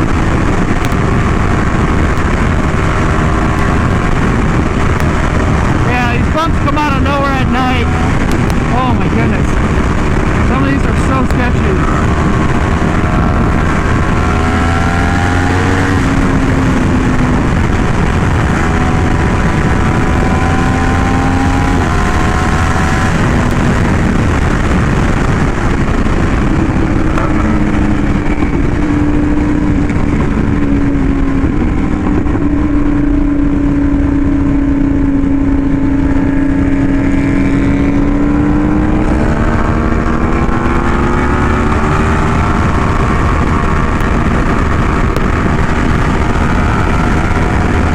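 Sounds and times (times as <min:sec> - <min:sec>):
motorcycle engine cruising: 0:00.0 - 0:47.9.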